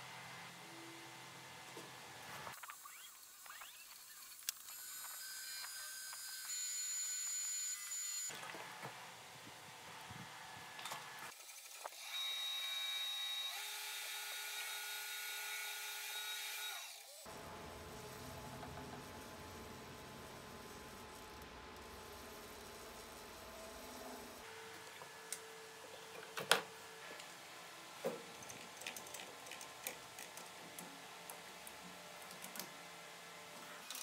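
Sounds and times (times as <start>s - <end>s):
wood lathe high whine: 2.9s - 8.3s.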